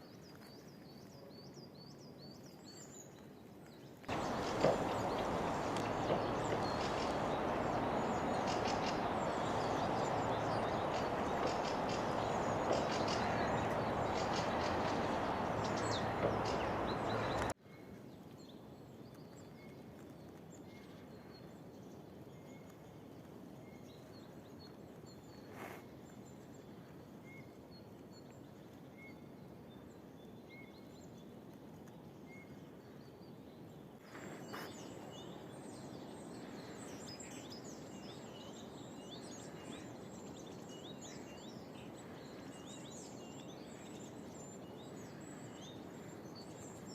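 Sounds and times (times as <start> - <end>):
loud steady rushing noise: 4.1 - 17.5
songbirds calling: 4.1 - 17.6, 32.3 - 46.9.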